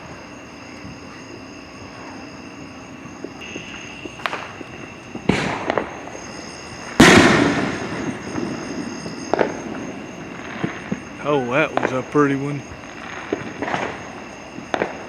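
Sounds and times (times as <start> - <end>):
fireworks crackling: 0.0 - 15.0
fireworks popping and booming: 0.0 - 15.0.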